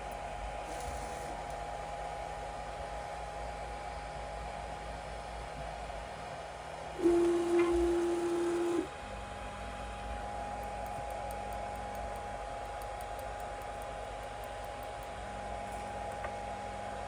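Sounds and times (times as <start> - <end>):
printer fans hissing and whining: 0.0 - 17.0.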